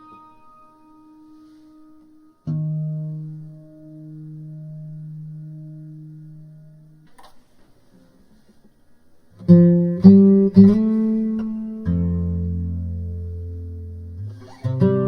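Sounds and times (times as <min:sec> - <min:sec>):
guitar plucked notes and chords: 0:00.0 - 0:07.4, 0:09.3 - 0:15.0.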